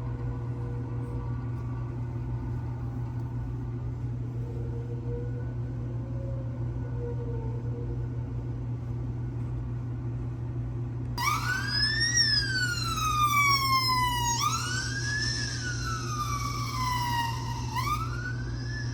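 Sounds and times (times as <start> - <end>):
steady low hum: 0.0 - 18.9
police siren wailing: 11.2 - 18.9.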